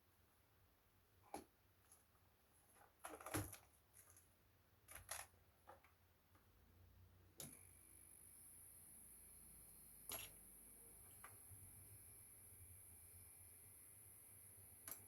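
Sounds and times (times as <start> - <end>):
faint high-pitched hum: 7.4 - 15.0.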